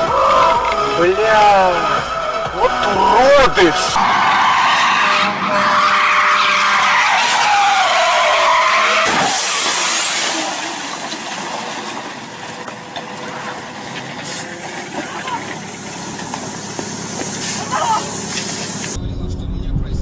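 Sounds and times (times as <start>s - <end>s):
road noise: 0.0s - 20.0s
car tyres squealing in a skid: 4.0s - 18.9s.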